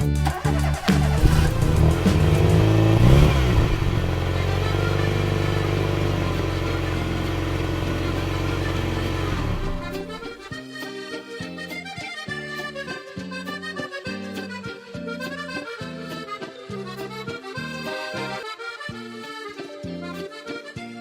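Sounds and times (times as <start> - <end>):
engine revving: 0.0 - 10.4.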